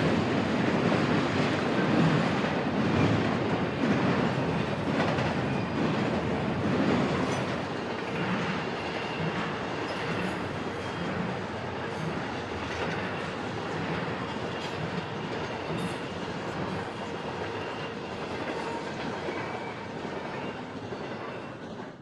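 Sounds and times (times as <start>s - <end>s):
freight train rumbling past: 0.0s - 22.0s
steel wheels clattering on rails: 0.0s - 22.0s
faint high wheel squeal: 8.9s - 11.4s, 16.9s - 21.6s.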